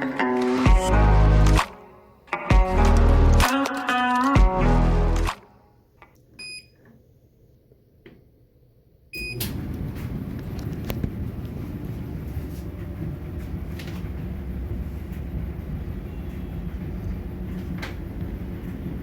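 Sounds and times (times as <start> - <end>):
dryer control beep: 6.4 - 6.8, 9.1 - 9.6
dryer drum rumble: 9.5 - 19.0.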